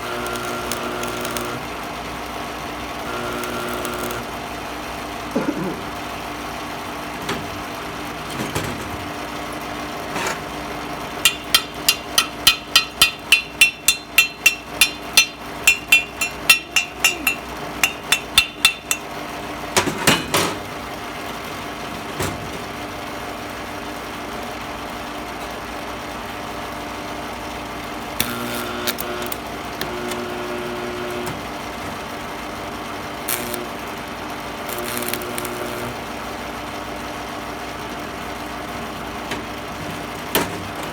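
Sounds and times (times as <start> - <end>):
hammer striking steel: 11.2 - 19.2.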